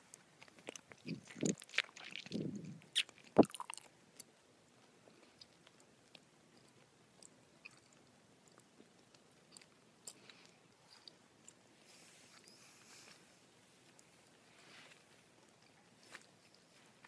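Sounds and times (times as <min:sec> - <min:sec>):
gummy bears being chewed: 0:00.1 - 0:11.7
lip smacks: 0:00.4 - 0:04.3
sticky mouth clicks: 0:00.4 - 0:04.3.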